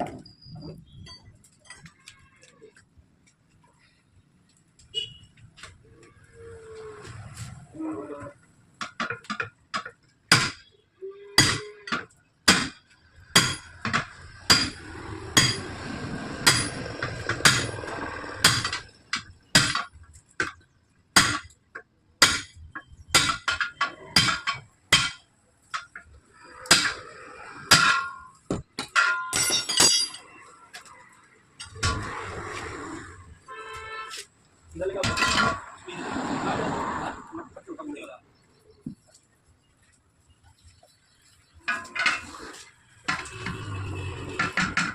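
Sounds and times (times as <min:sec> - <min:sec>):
scraping and clinking: 0:27.8 - 0:31.0.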